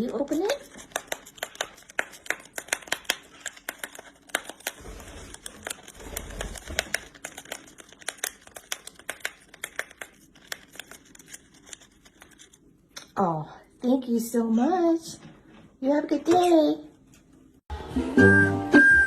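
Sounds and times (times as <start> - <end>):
parrot tearing paper packet: 0.0 - 12.7.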